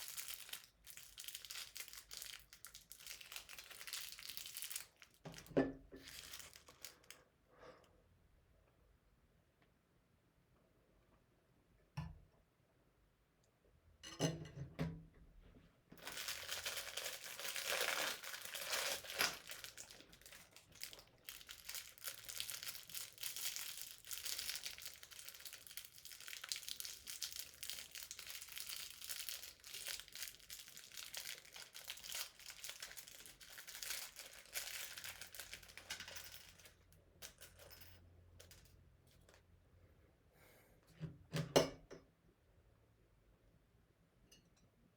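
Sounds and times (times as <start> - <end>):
packaging crinkling and rustling: 0.0 - 7.3, 16.0 - 37.7.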